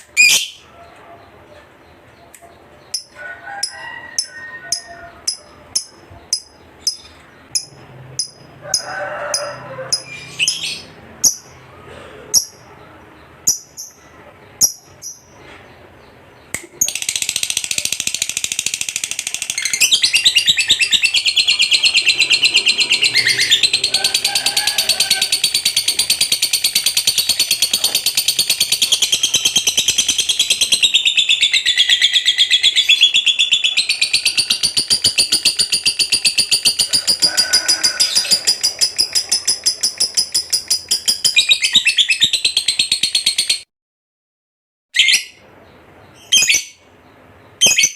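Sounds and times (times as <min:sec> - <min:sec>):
bird chattering trill: 0:01.9 - 0:08.9, 0:09.9 - 0:11.5, 0:16.7 - 0:43.6
lovebird chirping: 0:04.2 - 0:08.5, 0:09.9 - 0:11.6, 0:12.4 - 0:24.2, 0:24.8 - 0:37.2, 0:37.9 - 0:43.6, 0:46.0 - 0:47.9.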